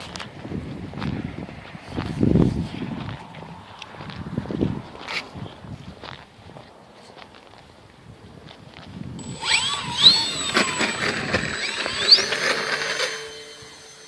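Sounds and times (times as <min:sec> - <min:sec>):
electric motor whine rising: 0:09.2 - 0:14.0
steady high tone: 0:09.2 - 0:14.0.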